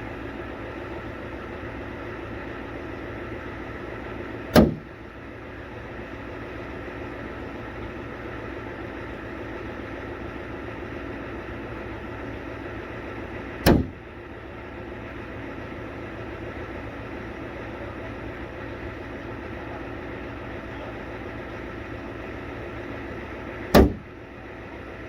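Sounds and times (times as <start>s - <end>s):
steady machine hum: 0.0s - 25.0s
loud knock: 4.6s - 4.9s, 13.7s - 14.0s, 23.8s - 24.1s.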